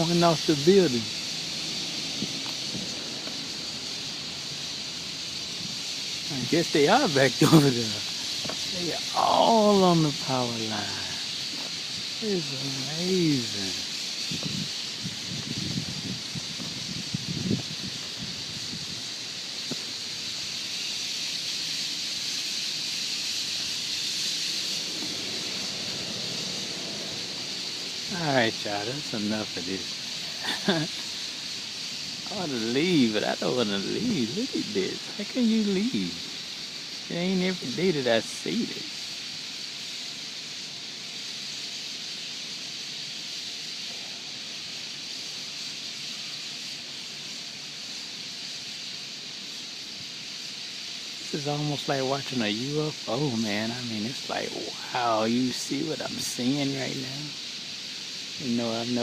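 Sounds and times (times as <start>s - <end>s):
flock of birds calling: 0.0s - 59.0s.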